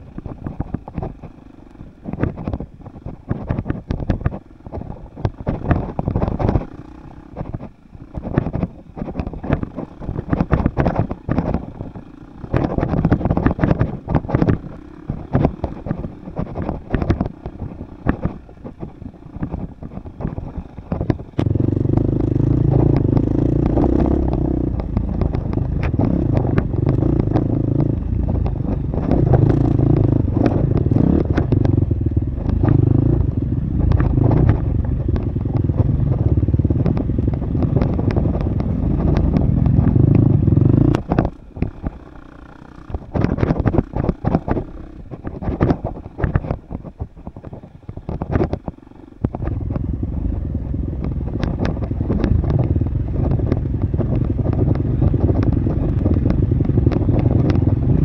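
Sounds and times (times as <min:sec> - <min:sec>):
dirt bike engine: 0:00.0 - 0:58.0
knocks and rattles: 0:00.0 - 0:58.0.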